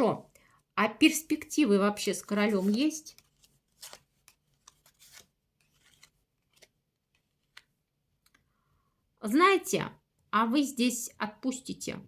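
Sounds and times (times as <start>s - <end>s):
playing cards clicking and rustling: 2.0s - 8.5s.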